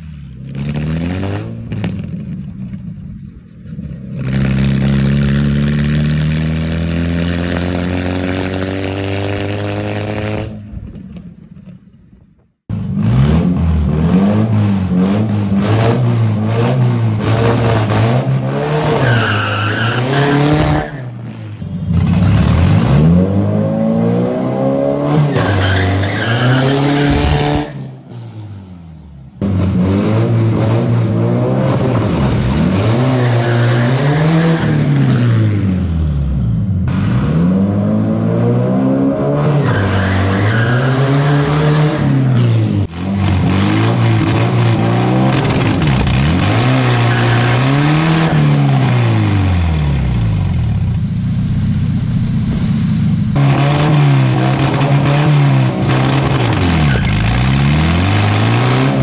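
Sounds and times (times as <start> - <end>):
car engine revving: 0.0 - 11.0, 12.7 - 59.0
tyres squealing: 18.9 - 21.1, 25.3 - 27.8.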